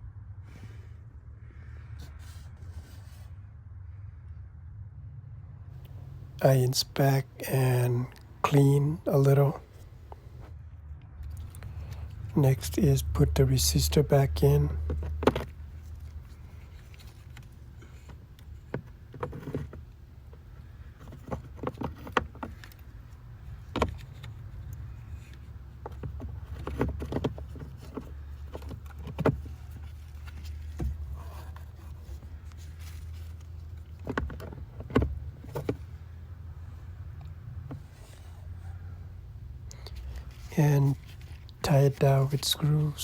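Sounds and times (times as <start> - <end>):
steady low hum: 0.0 - 43.0
clicks and light rattles of handling: 14.3 - 36.2.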